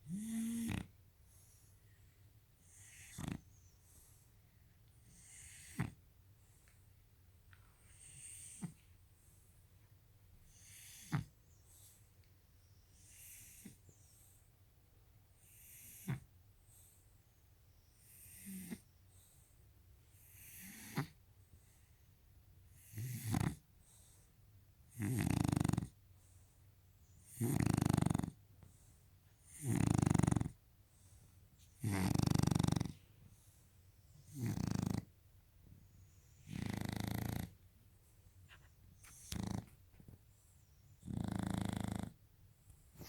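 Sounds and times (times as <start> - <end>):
dog snoring: 0.0 - 1.6, 2.6 - 3.8, 5.0 - 6.0, 7.9 - 8.8, 10.4 - 12.0, 13.0 - 13.9, 15.4 - 17.0, 18.0 - 19.4, 20.2 - 21.2, 22.7 - 24.2, 24.9 - 26.0, 27.2 - 28.8, 29.4 - 31.2, 31.8 - 33.6, 34.2 - 35.2, 36.4 - 37.6, 38.5 - 39.8, 41.0 - 42.2.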